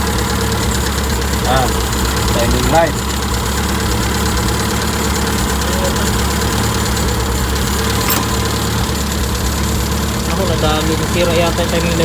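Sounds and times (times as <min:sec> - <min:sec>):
engine idling: 0:00.0 - 0:12.0
short click: 0:08.0 - 0:08.4.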